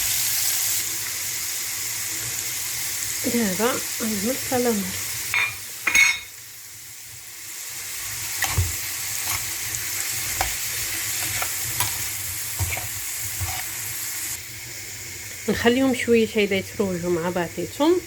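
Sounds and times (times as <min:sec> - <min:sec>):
food sizzling in a pan: 0:00.0 - 0:18.0
utensil scraping a pan: 0:08.4 - 0:13.9.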